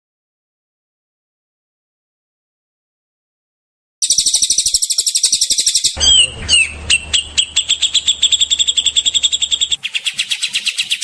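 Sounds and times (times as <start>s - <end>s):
bird song: 4.0s - 11.0s
songbird repeated high notes: 4.0s - 11.0s.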